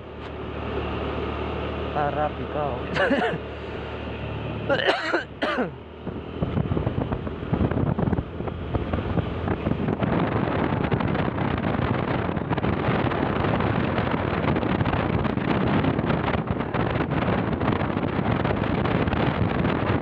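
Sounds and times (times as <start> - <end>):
vehicle hum: 0.0 - 20.0
wind buffeting microphone: 5.4 - 20.0.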